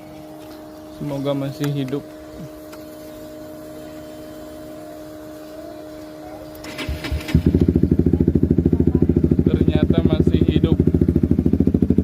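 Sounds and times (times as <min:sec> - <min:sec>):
faint hum: 0:00.0 - 0:12.0
motorcycle starter click: 0:06.5 - 0:07.8.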